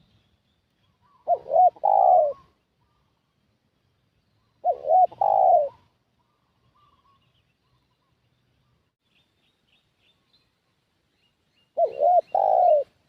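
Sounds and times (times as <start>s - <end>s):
dove cooing: 1.0s - 3.1s, 4.6s - 7.3s, 11.8s - 13.0s.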